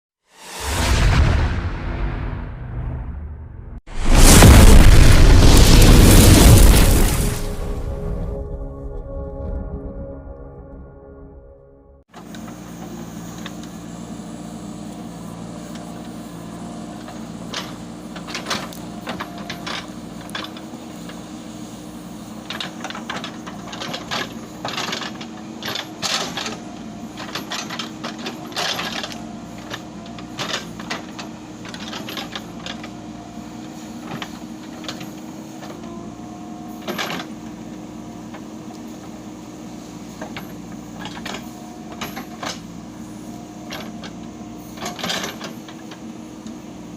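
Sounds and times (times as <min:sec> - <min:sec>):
diesel engine running: 0:12.1 - 0:46.9.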